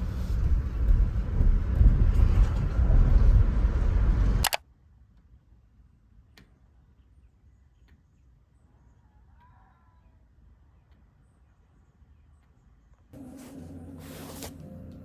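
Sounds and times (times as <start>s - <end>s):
gusty low rumble: 0.0s - 4.4s
sharp click: 4.4s - 4.6s.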